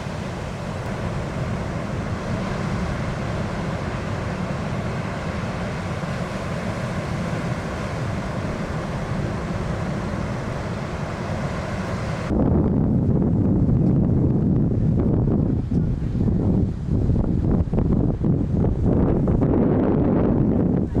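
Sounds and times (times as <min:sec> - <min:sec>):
ocean surf: 0:00.0 - 0:12.3
wind buffeting microphone: 0:00.0 - 0:21.0.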